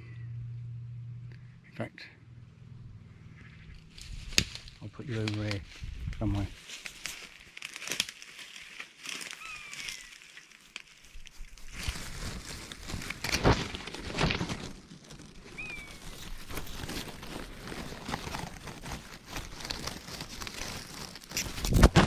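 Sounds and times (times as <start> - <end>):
bird chirp: 3.0 - 4.0, 9.4 - 10.4, 15.5 - 16.4
leaves crunching underfoot: 3.4 - 22.0.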